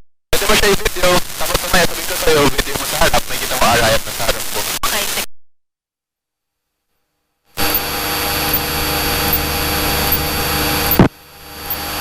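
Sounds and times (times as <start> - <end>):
airplane engine and propeller drone: 7.6 - 12.0.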